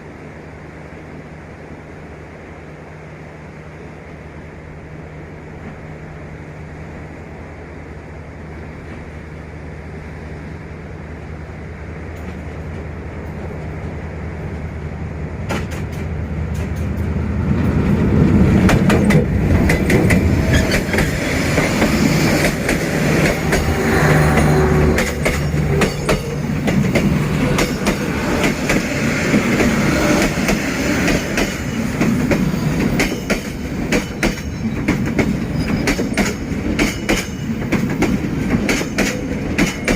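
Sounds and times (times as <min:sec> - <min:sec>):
locomotive engine drone: 0:00.0 - 0:36.8
train wheels clattering over joints: 0:15.4 - 0:39.9.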